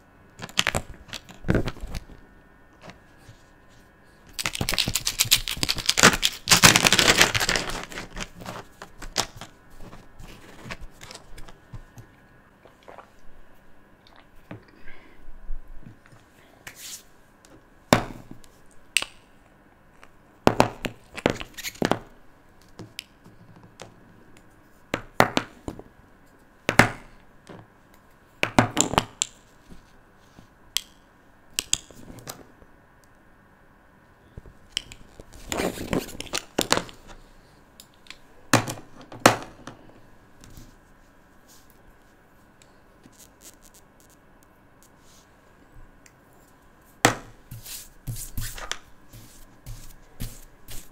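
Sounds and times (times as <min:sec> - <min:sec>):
plastic tubes clicking on paper: 0:04.3 - 0:08.4.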